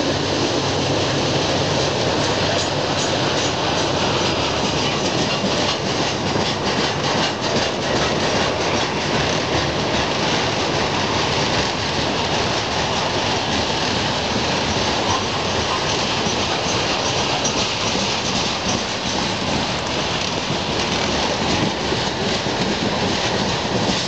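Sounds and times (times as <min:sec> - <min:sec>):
train wheels rumbling on rails: 0:00.0 - 0:24.0
rapid wheel clacks: 0:00.8 - 0:24.0.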